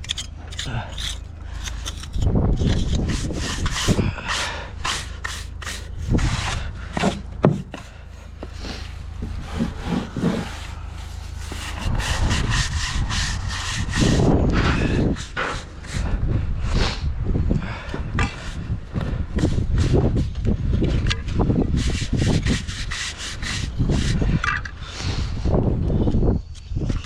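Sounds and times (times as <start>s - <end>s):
bricks knocking and clicking: 0.0s - 4.0s, 6.9s - 8.5s
trowel scraping mortar: 0.0s - 16.2s, 20.8s - 24.4s.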